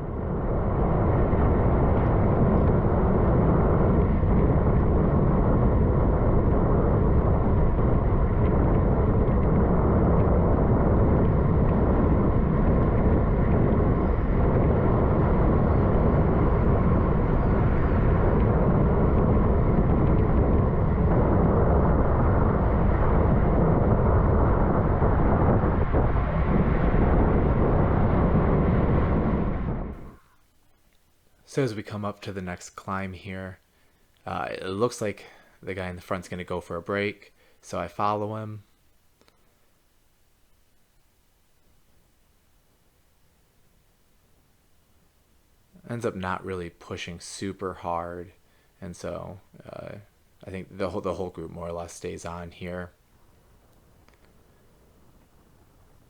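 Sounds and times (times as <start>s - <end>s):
wind rumble on microphone: 0.0s - 30.4s, 45.7s - 56.0s.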